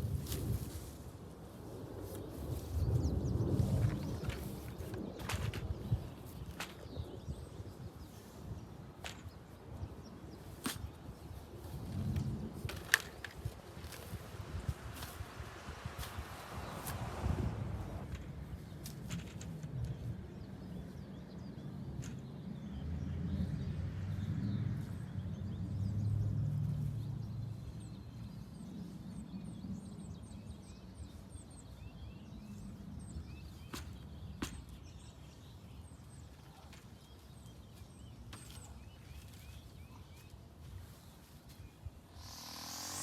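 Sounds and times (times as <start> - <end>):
small birds chirping faintly: 0.1 - 43.0
low rumble: 14.5 - 18.2.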